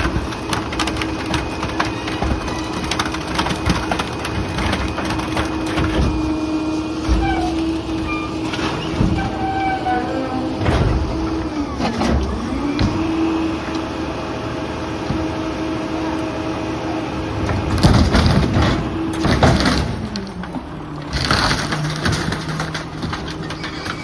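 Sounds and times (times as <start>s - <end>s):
wood cracking and splintering: 0.0s - 13.8s, 17.3s - 24.0s
hydraulic whine: 4.3s - 21.3s.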